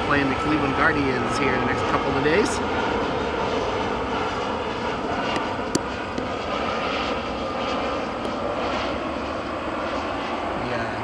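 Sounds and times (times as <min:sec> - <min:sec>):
jet airliner engines rumbling: 0:00.0 - 0:11.0.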